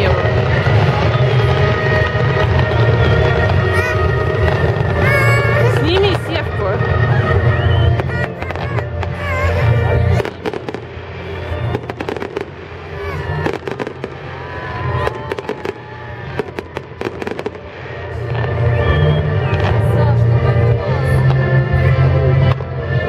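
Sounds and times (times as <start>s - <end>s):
fireworks bangs and crackles: 0.0s - 23.0s
music playing: 0.1s - 14.8s.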